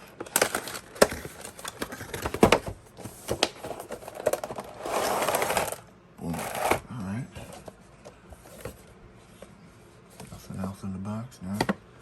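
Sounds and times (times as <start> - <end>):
cardboard and plastic packaging handled: 0.0 - 6.8, 7.4 - 9.5.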